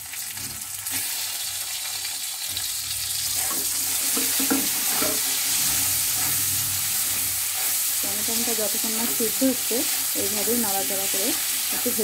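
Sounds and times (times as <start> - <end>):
tomatoes sizzling in hot oil: 0.0 - 12.0
spatula scraping a pan: 3.3 - 12.0.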